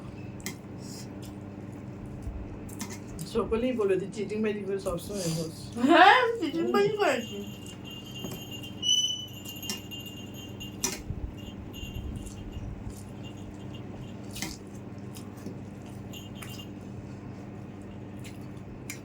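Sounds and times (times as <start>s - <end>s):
steady low hum: 0.0s - 19.0s
light metallic clinks: 6.7s - 14.3s.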